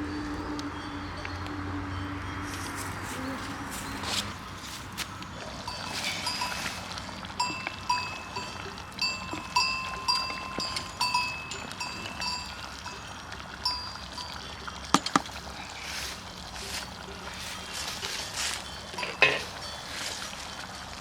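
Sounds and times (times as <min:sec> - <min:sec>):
small metal bell clanking: 0:05.4 - 0:20.7.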